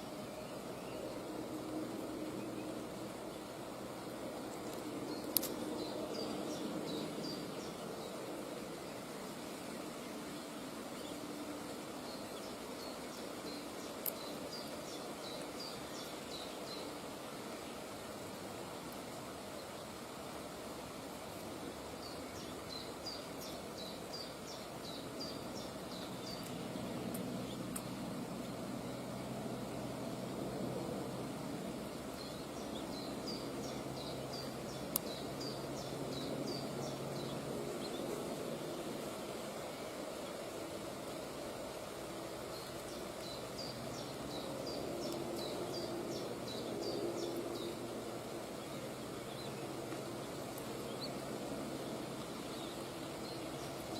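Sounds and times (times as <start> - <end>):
low background noise: 0.0 - 53.9
faint clicks: 4.5 - 6.4, 13.9 - 14.7, 25.9 - 28.0, 34.7 - 35.2, 45.0 - 45.5.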